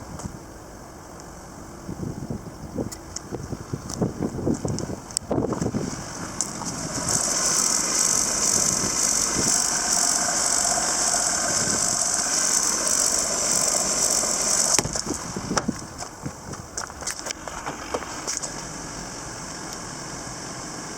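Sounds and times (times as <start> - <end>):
mechanical whirring: 5.3 - 16.5.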